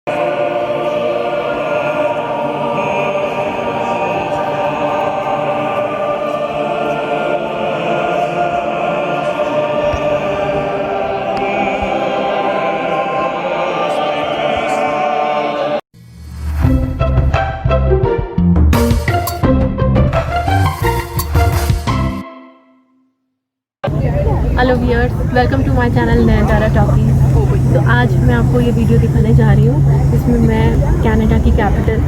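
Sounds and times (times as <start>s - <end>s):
choir with orchestra: 0.1s - 15.9s, 24.4s - 32.0s.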